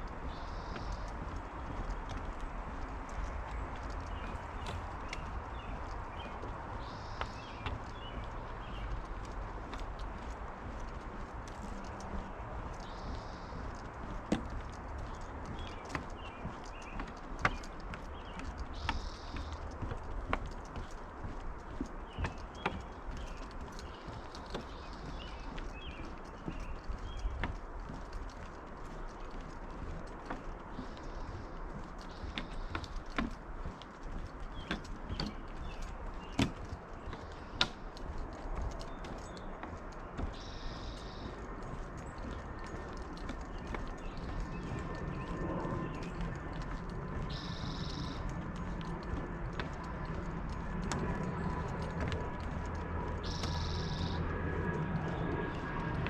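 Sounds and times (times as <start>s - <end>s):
distant aircraft rumble: 0.0s - 56.0s
footsteps on trail: 0.0s - 56.0s
bird chirps: 3.8s - 9.0s, 14.5s - 19.9s, 40.3s - 48.3s, 53.2s - 54.2s.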